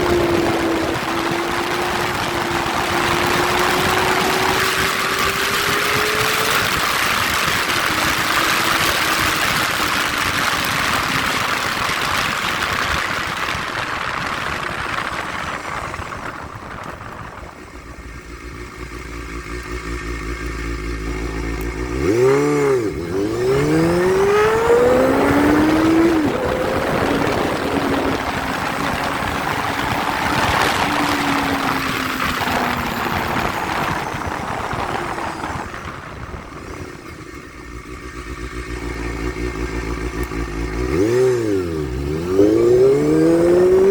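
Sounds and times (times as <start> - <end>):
motorcycle engine idling and revving: 0.0 - 43.9.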